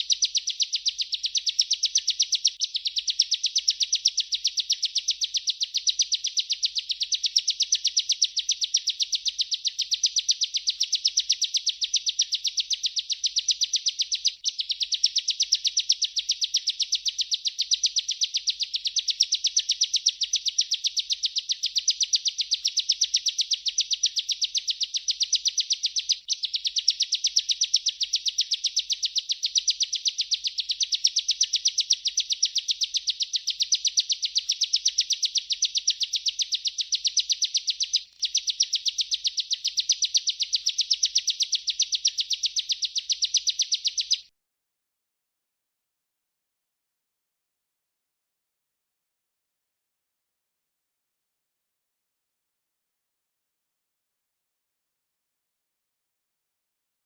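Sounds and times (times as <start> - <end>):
bird singing rolling song: 0.0 - 44.3.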